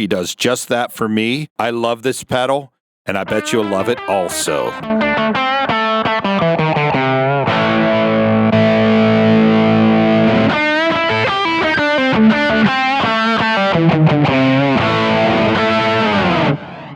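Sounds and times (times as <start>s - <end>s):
distorted electric guitar: 3.2s - 16.9s.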